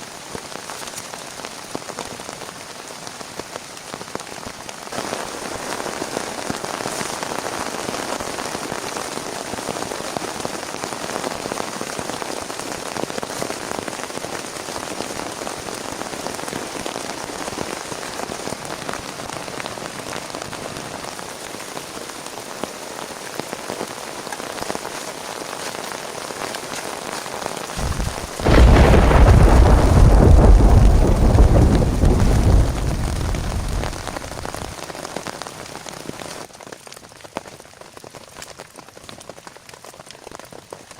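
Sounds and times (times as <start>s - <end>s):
heavy rain: 0.0s - 40.9s
thunder clap rumbling: 27.8s - 34.8s.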